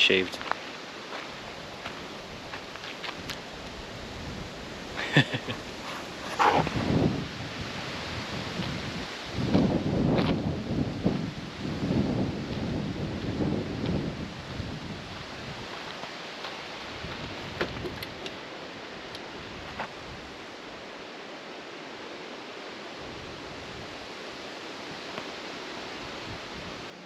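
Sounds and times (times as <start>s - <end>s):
rushing wind: 0.0s - 27.0s.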